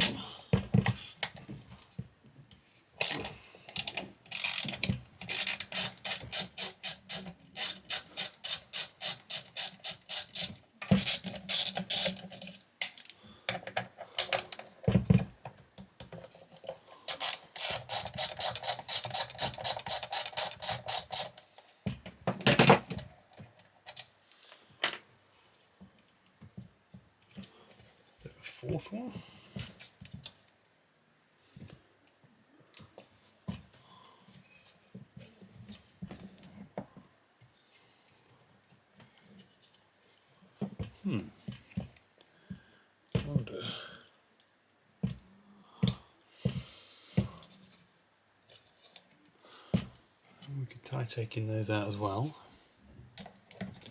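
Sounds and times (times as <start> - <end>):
ratchet wrench clicking: 3.8 - 12.2, 17.1 - 21.4.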